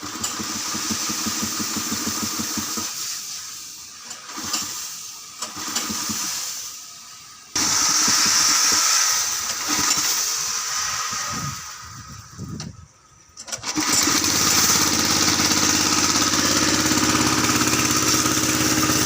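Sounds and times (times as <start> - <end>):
tractor diesel engine pulsing: 13.4 - 19.0.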